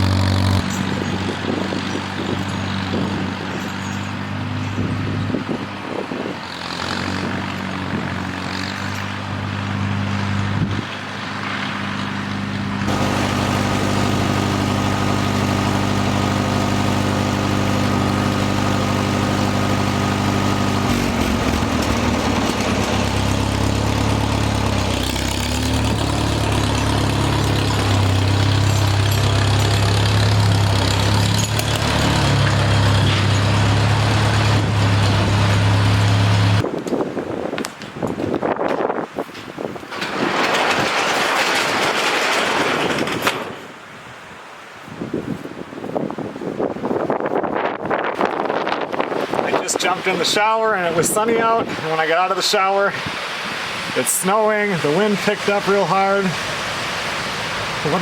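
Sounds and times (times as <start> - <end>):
engine idling: 12.0 - 36.6.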